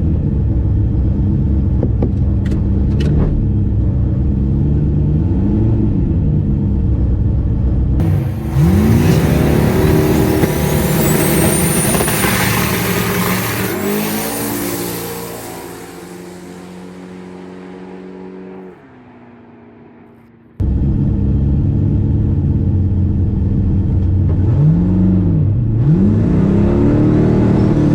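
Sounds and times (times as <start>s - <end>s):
drag car engine revving: 8.0s - 22.5s
turbo whistle: 8.1s - 17.1s.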